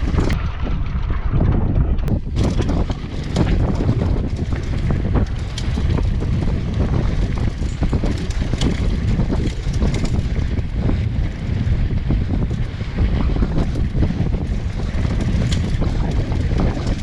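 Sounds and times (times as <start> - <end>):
bike clicks and rattles: 0.0 - 17.0
low rumble: 0.0 - 17.0
wind buffeting microphone: 0.0 - 17.0.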